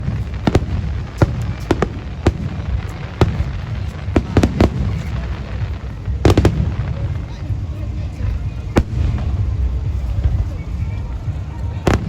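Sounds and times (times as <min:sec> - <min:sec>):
distant fireworks rumble: 0:00.0 - 0:12.0
fireworks bursting with sharp bangs: 0:00.0 - 0:12.0.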